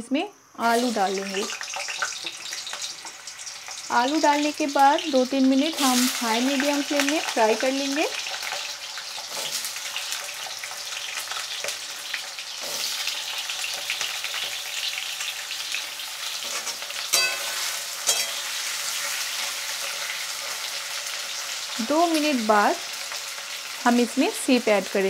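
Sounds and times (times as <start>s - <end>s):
potatoes sizzling in oil: 0.1s - 25.0s
spatula clinking against pan: 16.6s - 18.5s.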